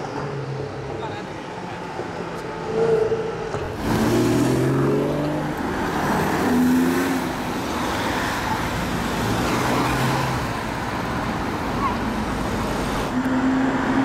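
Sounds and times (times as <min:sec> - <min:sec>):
car engines passing: 0:00.0 - 0:14.0
road noise rumble: 0:00.0 - 0:14.0
car engine accelerating: 0:03.5 - 0:08.2.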